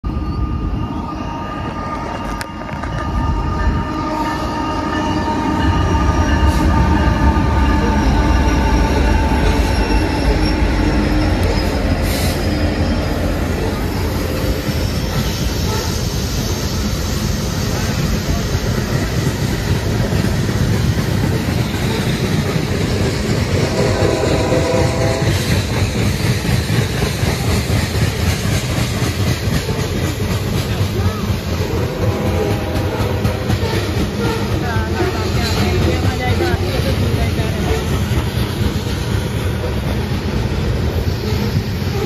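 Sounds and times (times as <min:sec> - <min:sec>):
high-pitched ringing tones: 0:00.0 - 0:15.5
train running on rails: 0:00.0 - 0:42.0.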